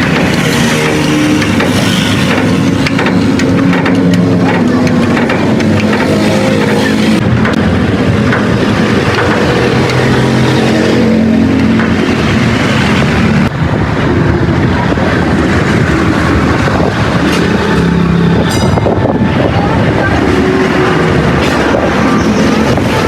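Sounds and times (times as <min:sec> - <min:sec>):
road traffic noise: 0:00.0 - 0:23.0
vehicle engines running: 0:00.0 - 0:23.0.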